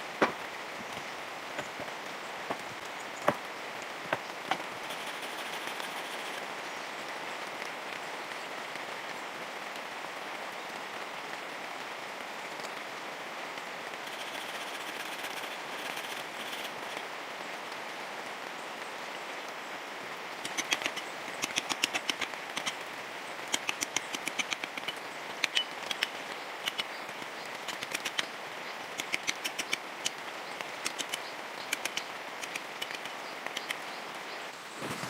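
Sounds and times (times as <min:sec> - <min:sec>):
hiss of rain: 0:00.0 - 0:35.0
sharp rapid clicks: 0:20.4 - 0:22.8, 0:23.5 - 0:28.3, 0:28.9 - 0:33.8.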